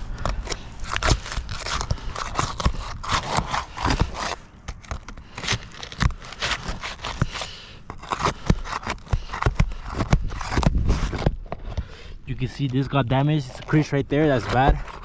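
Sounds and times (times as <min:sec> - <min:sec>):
roof shingle cracking and tearing: 0:00.0 - 0:11.8
shingle scraping: 0:00.0 - 0:15.0.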